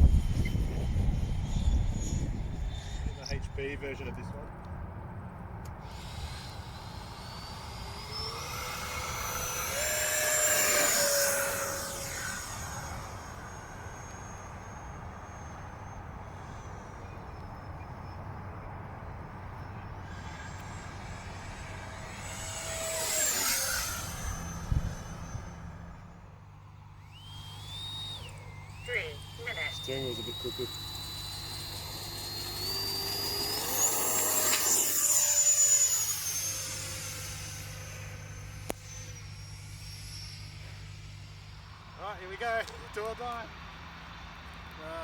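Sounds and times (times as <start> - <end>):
model jet fan whine flying past: 0.0 - 45.0.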